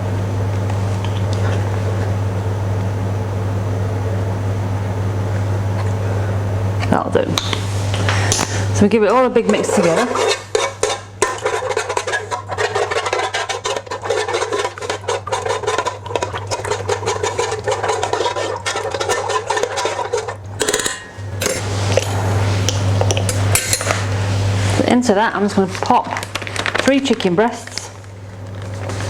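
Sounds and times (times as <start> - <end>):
utensil stirring sauce: 8.3 - 24.8
clinks and scrapes on container: 9.5 - 22.1.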